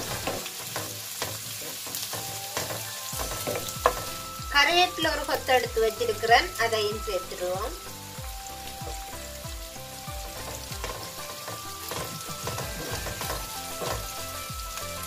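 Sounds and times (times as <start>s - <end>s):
wooden spatula scraping a pan: 0.0s - 4.2s, 10.4s - 14.1s
onions sizzling in hot oil: 0.0s - 15.0s
soft background music: 0.0s - 15.0s.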